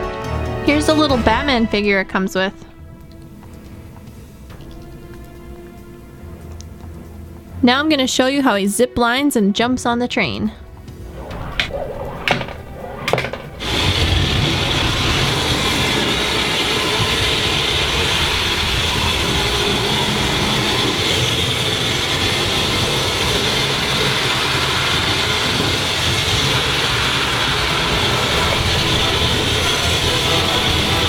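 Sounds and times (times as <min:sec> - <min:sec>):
toy train motor whir: 0:13.6 - 0:31.0.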